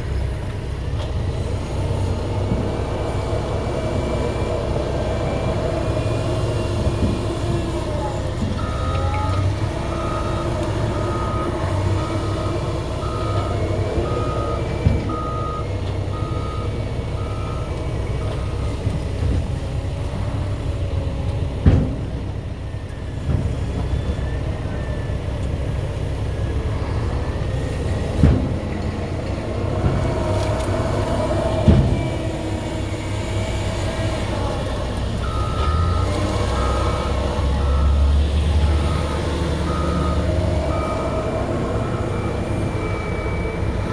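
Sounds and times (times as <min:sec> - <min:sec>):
diesel engine running under load: 0:00.0 - 0:43.9
backup alarm beeping: 0:08.6 - 0:18.7, 0:35.2 - 0:43.9.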